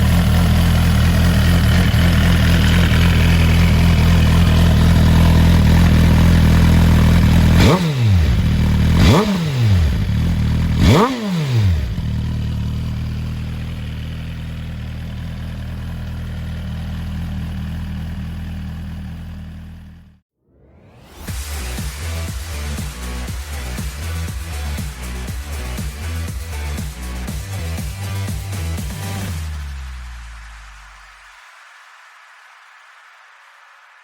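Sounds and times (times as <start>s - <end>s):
motorcycle engine idling: 0.0s - 20.2s, 22.2s - 29.5s
motorcycle engine revving: 0.0s - 20.2s, 21.3s - 30.0s.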